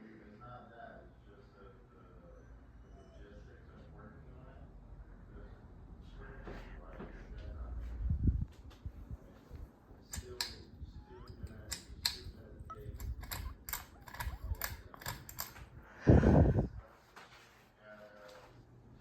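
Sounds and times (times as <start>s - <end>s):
sharp irregular clicks: 11.4s - 15.6s.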